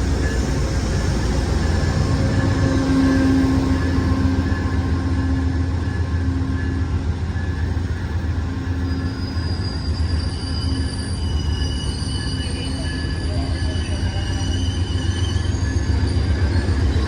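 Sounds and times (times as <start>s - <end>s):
locomotive engine rumble: 0.0s - 10.3s
train brakes squealing: 0.0s - 17.0s.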